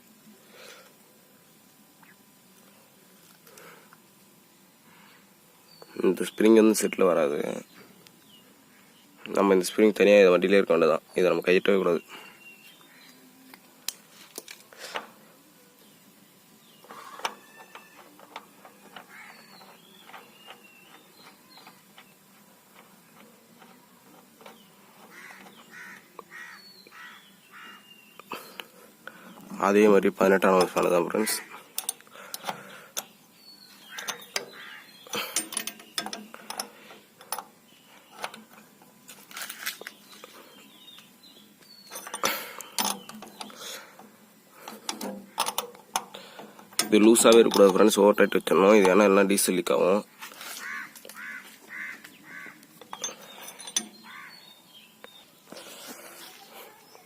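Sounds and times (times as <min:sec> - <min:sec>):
metal tools clicking and clinking: 0:31.7 - 0:33.1, 0:33.9 - 0:37.6, 0:41.9 - 0:43.6, 0:44.7 - 0:48.0, 0:52.8 - 0:54.1.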